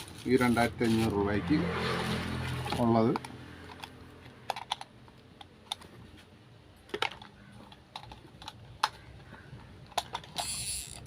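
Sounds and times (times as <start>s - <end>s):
hard parts clicking and tapping: 2.6s - 11.0s.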